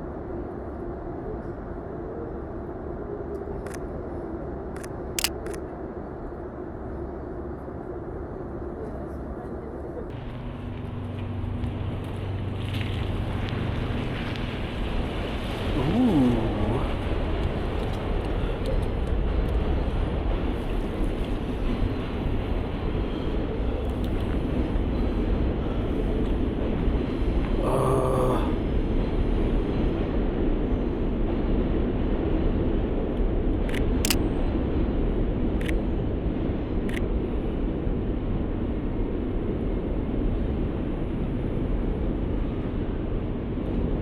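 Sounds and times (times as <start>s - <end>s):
city street rumble: 0.0s - 44.0s
camera shutter clicks: 5.2s - 5.6s.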